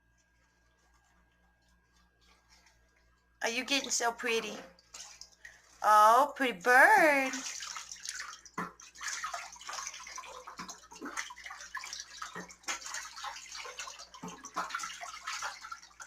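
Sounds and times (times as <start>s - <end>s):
goose bill splashing in water: 7.3s - 16.0s.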